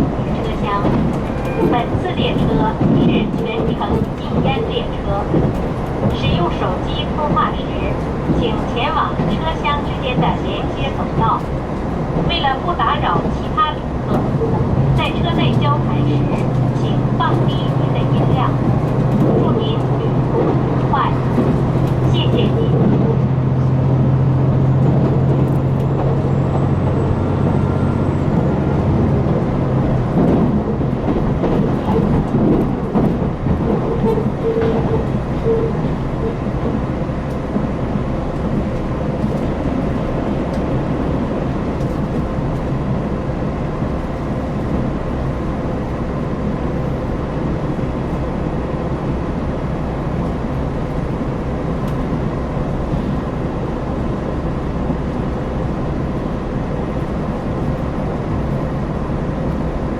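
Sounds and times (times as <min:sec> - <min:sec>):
train diesel engine hum: 0:00.0 - 0:59.9
wheels rumbling on rails: 0:00.0 - 0:59.9.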